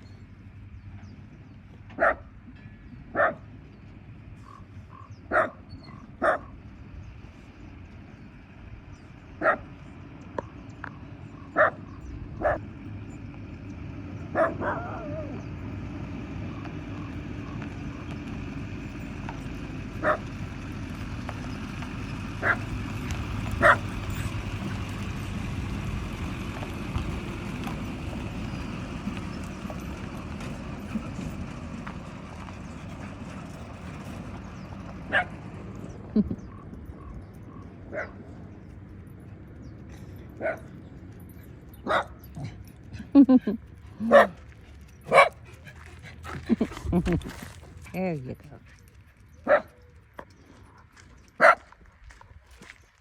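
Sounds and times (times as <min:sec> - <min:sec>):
low steady rumble: 0:00.0 - 0:53.0
dog barking: 0:02.0 - 0:02.3, 0:03.1 - 0:03.5, 0:05.3 - 0:06.6, 0:09.4 - 0:09.7, 0:11.5 - 0:12.6, 0:14.3 - 0:15.4, 0:20.0 - 0:20.3, 0:22.4 - 0:22.6, 0:23.6 - 0:23.9, 0:35.1 - 0:35.4, 0:37.9 - 0:38.2, 0:40.4 - 0:40.7, 0:41.8 - 0:42.6, 0:44.0 - 0:44.4, 0:45.1 - 0:45.4, 0:49.4 - 0:49.8, 0:51.4 - 0:51.7.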